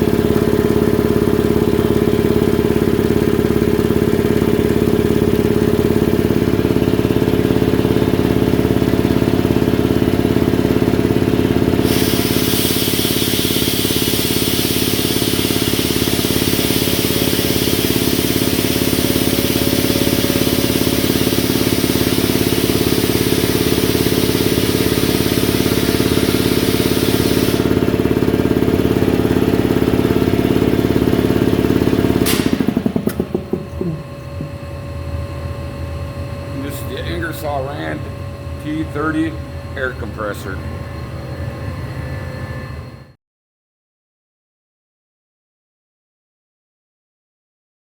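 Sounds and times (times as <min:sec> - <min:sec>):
air compressor pumping drone: 0:00.0 - 0:43.1
loud air hiss: 0:11.8 - 0:28.0.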